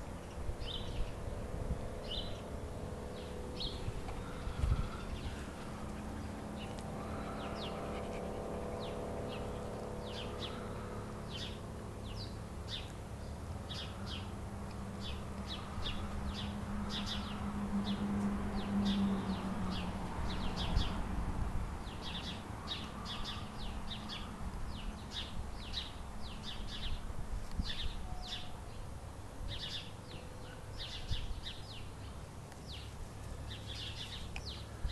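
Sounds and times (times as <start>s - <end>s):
low steady hum: 0.0s - 20.1s
small birds chirping: 0.0s - 21.1s, 21.8s - 34.9s.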